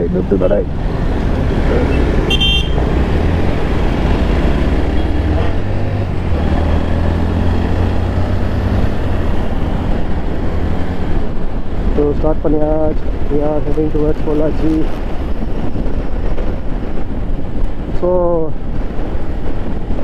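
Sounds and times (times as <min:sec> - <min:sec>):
traffic rumble: 0:00.0 - 0:20.0
car horn toot: 0:01.9 - 0:03.0.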